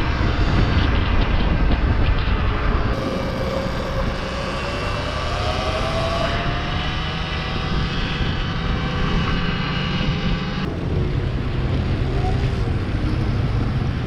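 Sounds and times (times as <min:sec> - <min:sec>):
wind rumbling on microphone: 0:00.0 - 0:14.0
electric motor whine: 0:03.0 - 0:10.7.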